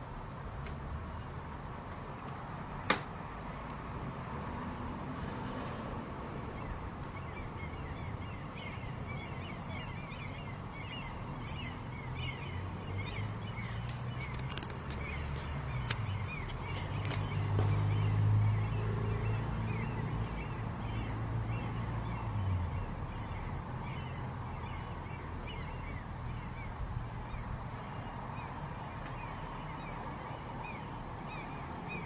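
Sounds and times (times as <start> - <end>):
high chirping bird calls: 6.6 - 32.0.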